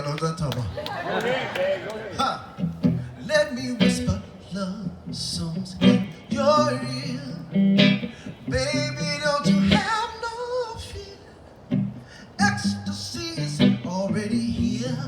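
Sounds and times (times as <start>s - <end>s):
acoustic guitar: 2.4s - 15.0s.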